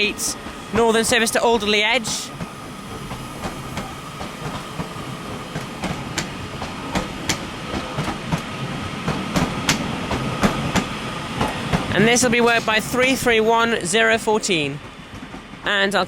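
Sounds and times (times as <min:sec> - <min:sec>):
electric train hum with whine: 0:00.0 - 0:16.0
train wheels clicking over rail joints: 0:00.7 - 0:13.2.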